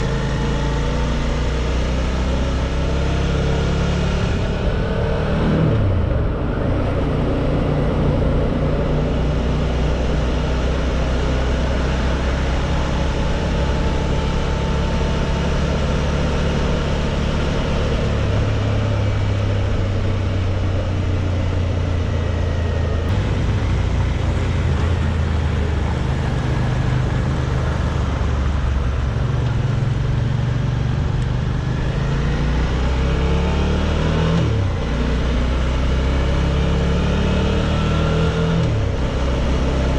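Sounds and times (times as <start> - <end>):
motorcycle engine running: 4.0 - 33.6.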